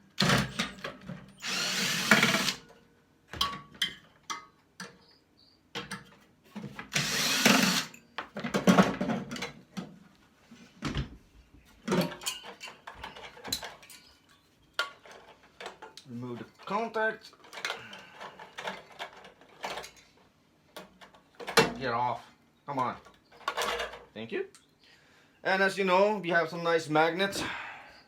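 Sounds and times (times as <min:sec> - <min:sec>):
power drill running: 0:01.4 - 0:02.6, 0:06.9 - 0:08.0.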